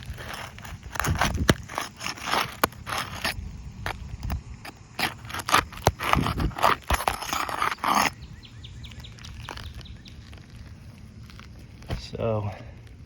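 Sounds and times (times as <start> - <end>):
roof shingle tearing loose: 0.0 - 8.2.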